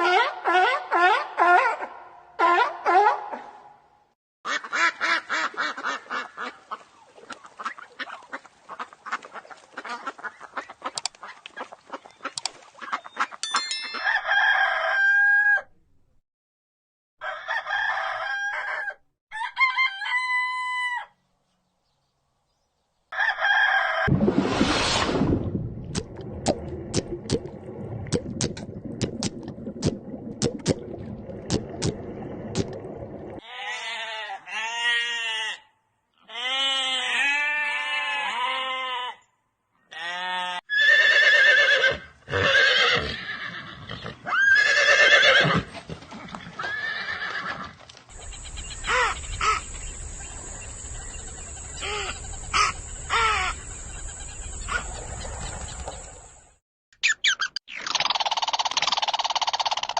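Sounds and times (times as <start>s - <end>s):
horses neighing and whinnying: 40.0s - 49.6s.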